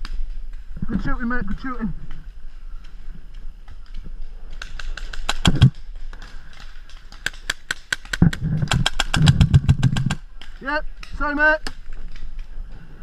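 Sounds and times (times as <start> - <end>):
paintball markers firing: 4.6 - 10.6.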